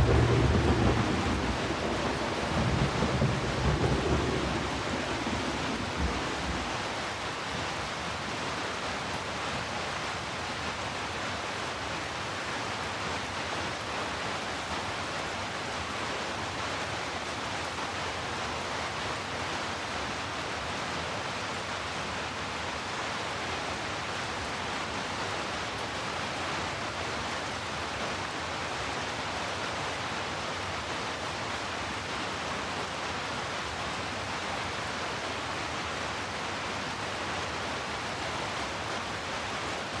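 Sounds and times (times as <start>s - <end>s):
distant thunder rumble: 0.0s - 6.9s
heavy rain: 0.0s - 40.0s.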